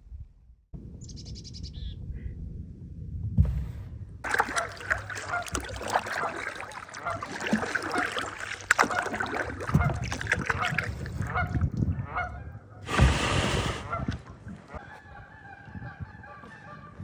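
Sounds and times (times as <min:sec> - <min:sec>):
wind rumbling on microphone: 0:00.0 - 0:06.2, 0:08.7 - 0:17.0
geese honking: 0:04.3 - 0:13.0, 0:13.8 - 0:17.0.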